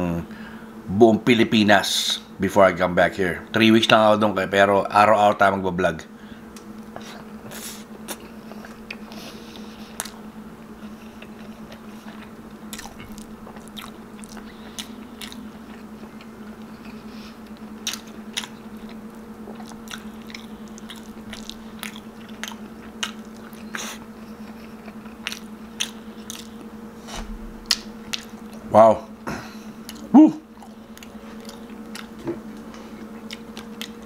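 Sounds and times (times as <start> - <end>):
steady low hum: 0.0 - 34.0
man chewing with mouth smacks: 6.5 - 28.7, 29.4 - 34.0.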